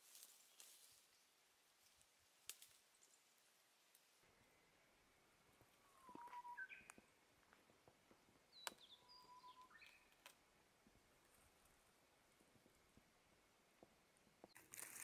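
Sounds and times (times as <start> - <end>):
songbird whistling song: 5.8 - 7.1, 8.5 - 10.1.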